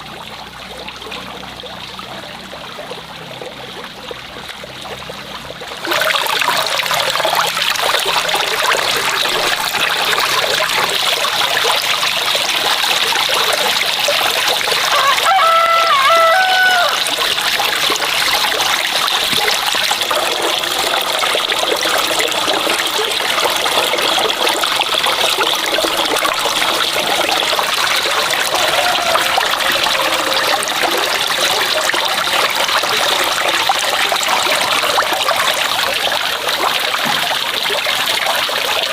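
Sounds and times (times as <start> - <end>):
water running and trickling: 0.0 - 38.9
rooster crowing: 14.9 - 17.0, 28.5 - 30.9.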